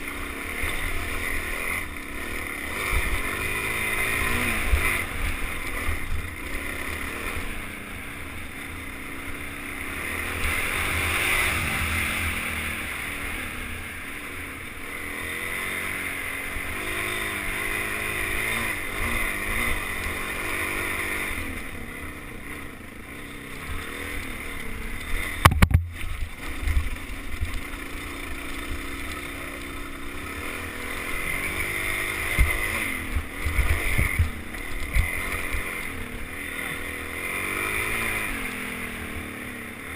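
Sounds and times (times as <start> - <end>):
dirt bike engine running: 0.0 - 39.9
sharp knocks: 25.4 - 26.0.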